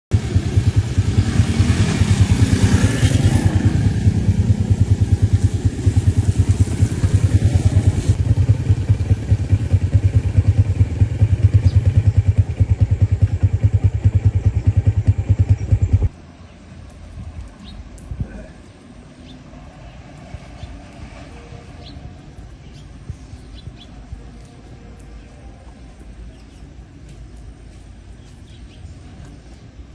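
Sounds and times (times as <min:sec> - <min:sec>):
small engine idling: 0:00.1 - 0:16.2.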